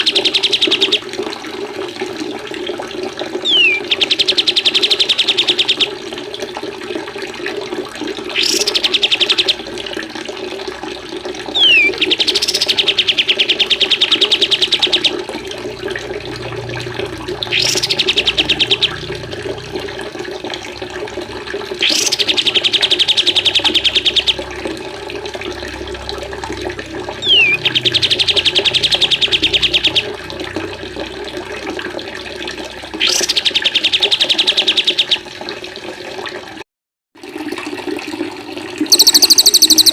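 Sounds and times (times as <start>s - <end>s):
running water: 0.0s - 36.6s, 37.2s - 39.9s
bird rattling trills: 3.4s - 5.9s, 8.4s - 9.6s, 11.5s - 15.2s, 17.5s - 19.0s, 21.8s - 24.3s, 27.2s - 30.1s, 38.9s - 39.9s
short falling whistle: 38.9s - 39.9s.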